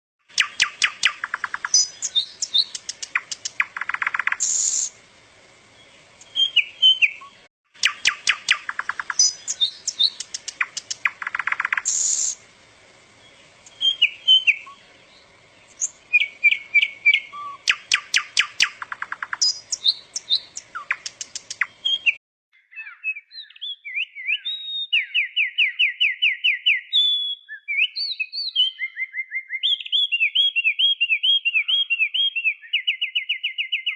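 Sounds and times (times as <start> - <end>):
songbird chirping and trilling: 0.3 - 33.9
background hiss: 0.4 - 22.1.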